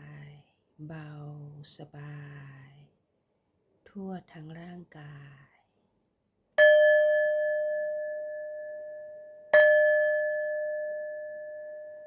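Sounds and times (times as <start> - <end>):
singing bowl ringing: 6.6 - 12.0.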